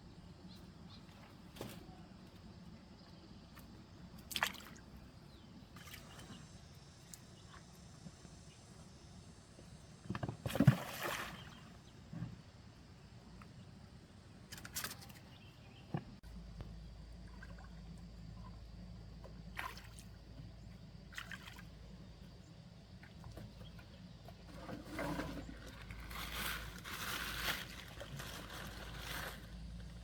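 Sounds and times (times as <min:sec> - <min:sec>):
water sloshing and splashing: 0:04.2 - 0:05.0, 0:10.1 - 0:11.8, 0:19.3 - 0:22.0.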